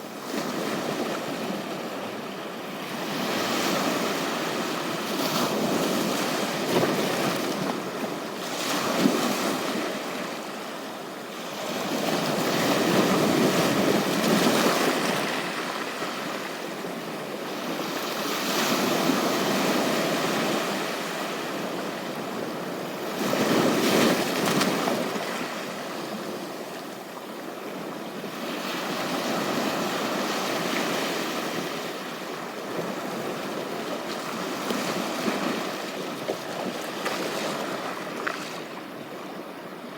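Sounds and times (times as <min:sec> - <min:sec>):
sea waves breaking on beach: 0:28.2 - 0:39.0.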